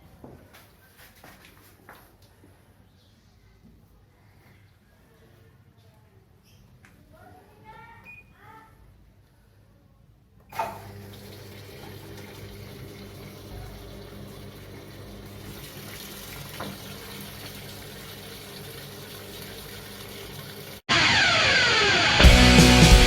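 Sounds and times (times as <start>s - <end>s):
water running into washing machine: 10.5s - 20.8s.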